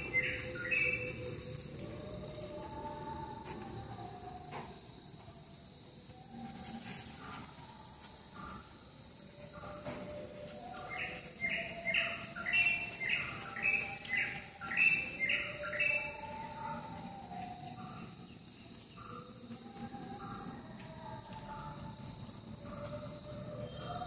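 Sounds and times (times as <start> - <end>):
bird chirping: 0.0 - 3.1, 9.2 - 20.5, 22.6 - 24.0.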